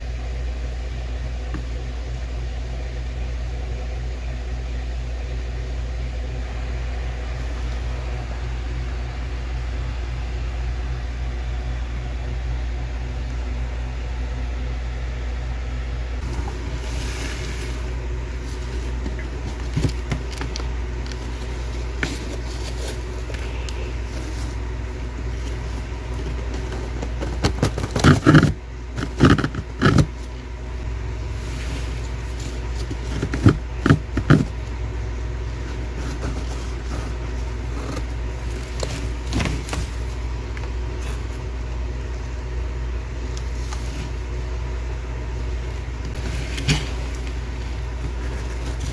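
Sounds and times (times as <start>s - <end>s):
steady low hum: 0.0s - 48.9s
frost cracking and crunching: 16.2s - 30.3s.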